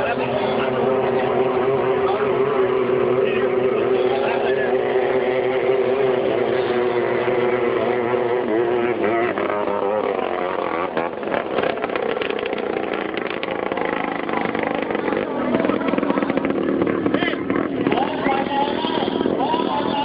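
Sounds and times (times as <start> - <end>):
racing boat engine: 0.0 - 20.0
fast rattling: 9.4 - 20.0.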